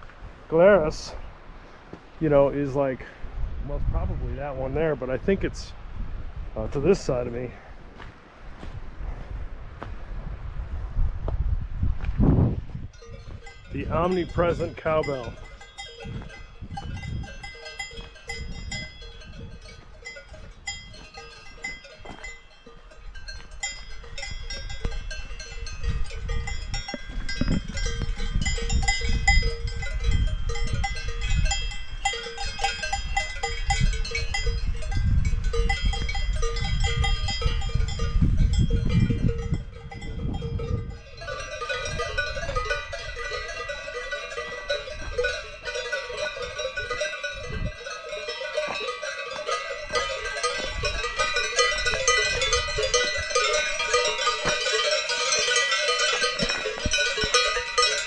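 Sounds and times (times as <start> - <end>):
cowbells clanking: 12.9 - 58.0.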